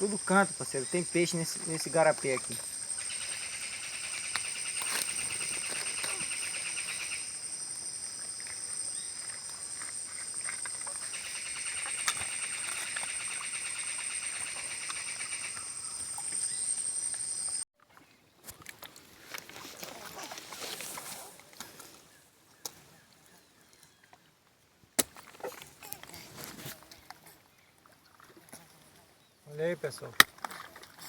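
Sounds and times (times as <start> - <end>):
insects droning: 0.0 - 17.6
pulsing insect trill: 0.0 - 17.6.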